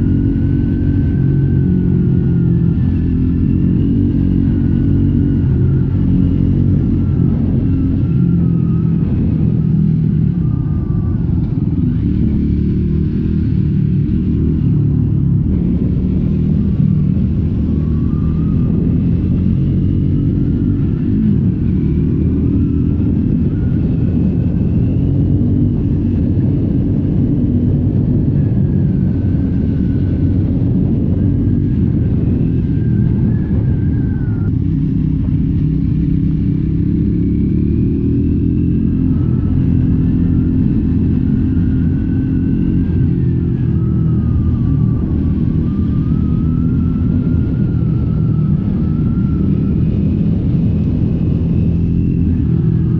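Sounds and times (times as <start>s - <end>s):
motorcycle engine rumbling: 0.0s - 52.9s.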